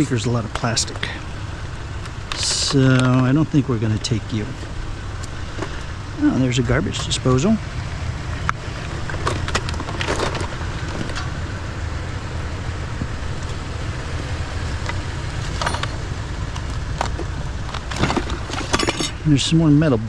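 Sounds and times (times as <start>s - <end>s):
vehicle engine idling: 0.0s - 20.0s
knocks and rustles of junk: 9.1s - 11.3s, 15.5s - 19.2s.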